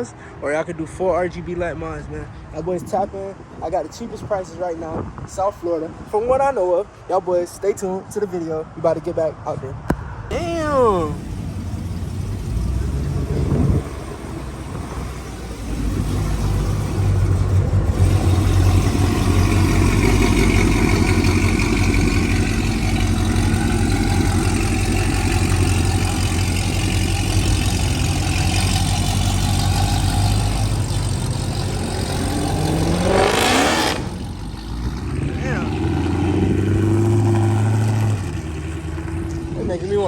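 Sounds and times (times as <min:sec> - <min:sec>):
car engines running: 0:09.7 - 0:40.0
engine revving: 0:10.3 - 0:39.7.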